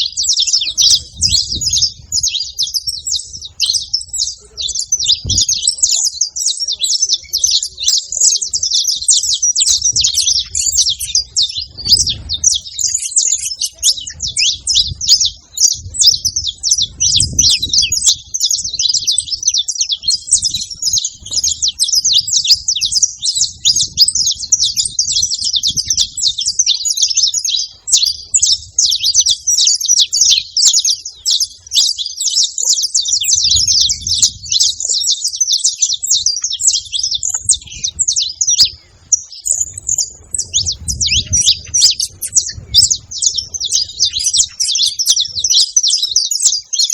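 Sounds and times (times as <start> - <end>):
finches chirping: 0.0 - 46.9.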